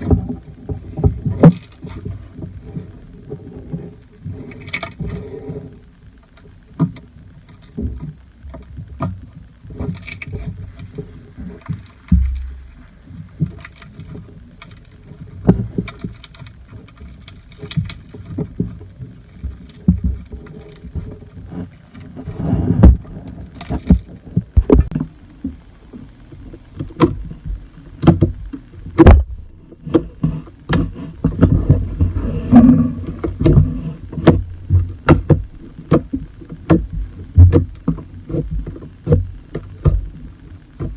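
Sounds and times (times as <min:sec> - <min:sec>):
low thumps: 0:24.6 - 0:40.9.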